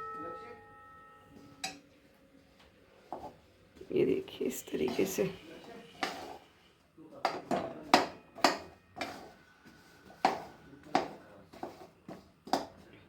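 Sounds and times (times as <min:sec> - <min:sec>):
spoon scraping and knocking pan: 0:03.1 - 0:03.4, 0:04.8 - 0:06.6, 0:07.2 - 0:12.8.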